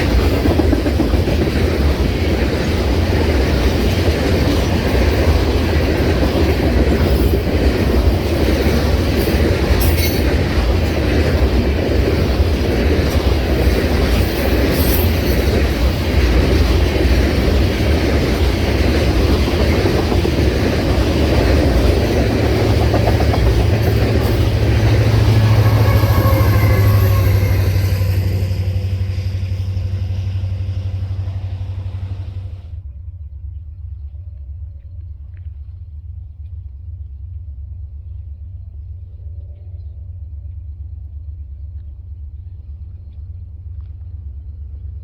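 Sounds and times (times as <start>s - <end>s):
wheels clacking over rail joints: 0.0s - 32.6s
train railcars rumbling: 0.0s - 32.9s
low steady hum: 28.8s - 45.0s.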